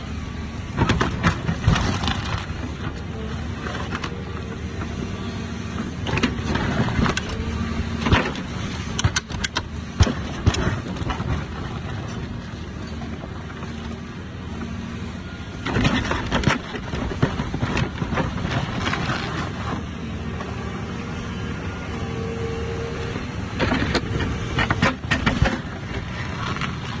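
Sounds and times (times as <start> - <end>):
excavator diesel engine: 0.0 - 27.0
rock grinding and cracking: 23.6 - 27.0.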